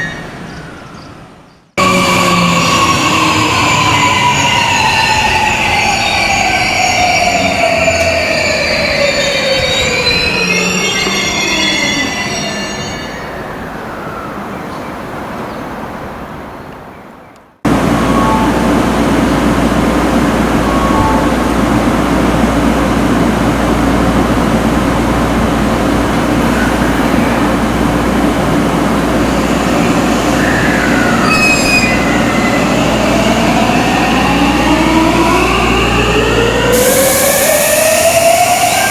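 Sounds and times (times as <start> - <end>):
train motor whine: 1.8 - 12.8
standing train hum: 1.8 - 16.5, 17.7 - 38.9
train wheels squealing: 2.6 - 14.4, 29.3 - 34.2.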